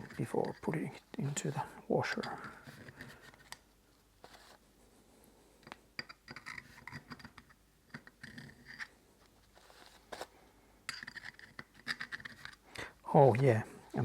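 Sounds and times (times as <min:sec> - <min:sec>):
paper rustling and scratching: 0:04.2 - 0:04.7, 0:08.1 - 0:10.3, 0:11.0 - 0:12.6.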